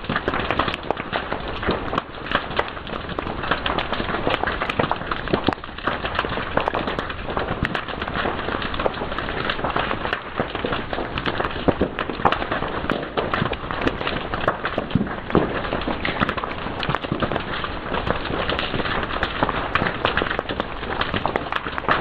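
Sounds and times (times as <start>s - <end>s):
fire crackling: 0.0s - 22.0s.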